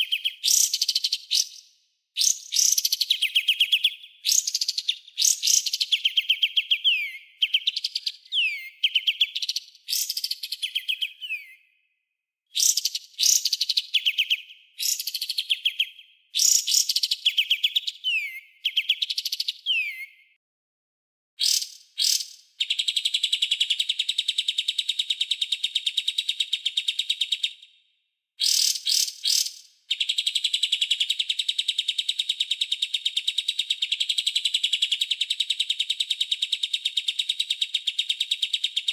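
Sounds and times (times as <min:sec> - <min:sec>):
songbird whistled calls: 0:00.0 - 0:11.7, 0:12.6 - 0:20.2, 0:21.4 - 0:23.9, 0:28.4 - 0:31.1.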